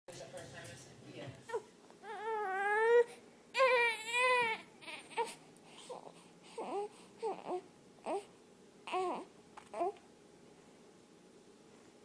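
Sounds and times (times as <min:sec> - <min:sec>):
baby crying and whimpering: 0:01.5 - 0:10.0.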